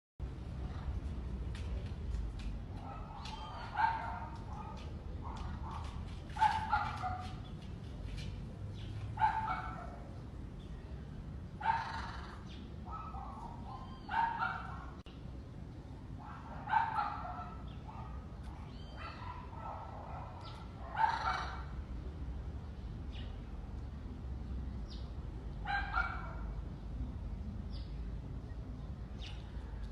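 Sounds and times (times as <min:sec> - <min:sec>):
steady background noise: 0:00.2 - 0:29.9
macaw calling: 0:11.7 - 0:12.5, 0:21.0 - 0:21.7.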